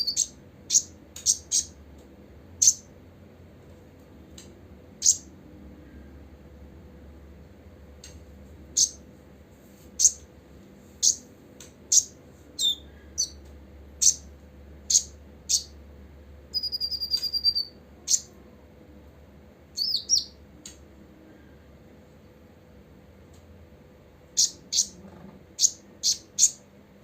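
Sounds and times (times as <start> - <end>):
bird chipping and trilling: 0.0 - 1.8, 2.6 - 2.9, 5.0 - 5.3, 8.7 - 9.0, 10.0 - 10.2, 11.0 - 11.3, 11.9 - 13.4, 14.0 - 15.8, 16.5 - 18.4, 19.8 - 20.4, 24.3 - 26.6.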